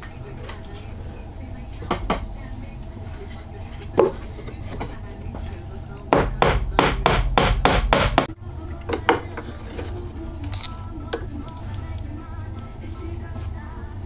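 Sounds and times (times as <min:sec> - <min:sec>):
hammer striking wood: 0:06.1 - 0:08.4.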